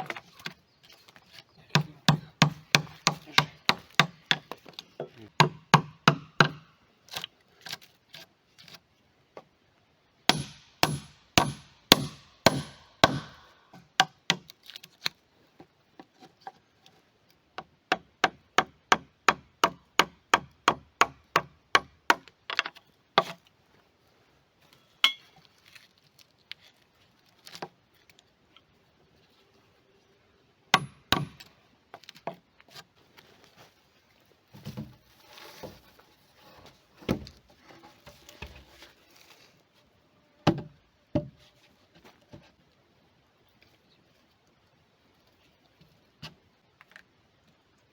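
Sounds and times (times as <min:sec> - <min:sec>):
hand tool striking wood: 0:01.7 - 0:04.6, 0:05.4 - 0:06.6, 0:10.3 - 0:14.5, 0:30.7 - 0:31.5.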